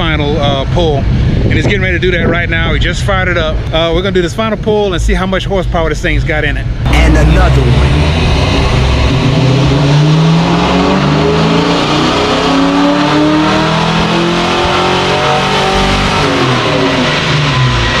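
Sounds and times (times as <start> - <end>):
car engine revving up: 6.7 - 18.0.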